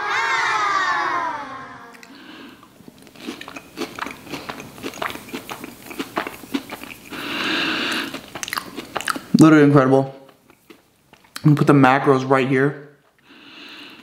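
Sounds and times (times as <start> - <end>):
person crunching and chewing: 2.0 - 9.3, 10.2 - 11.4.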